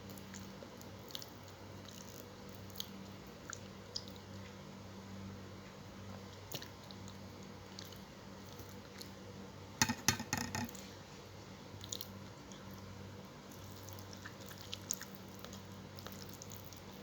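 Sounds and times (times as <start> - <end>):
close chewing and biting: 0.0 - 4.4, 11.8 - 17.0.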